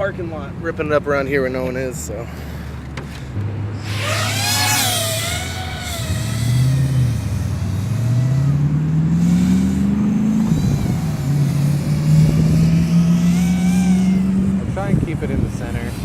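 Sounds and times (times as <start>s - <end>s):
quadcopter propellers buzzing: 3.3s - 16.0s.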